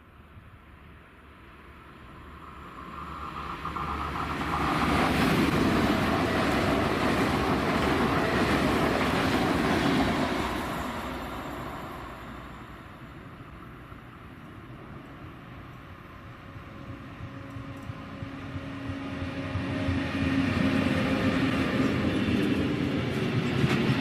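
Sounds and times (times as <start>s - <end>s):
train passing close by: 0.0s - 24.0s.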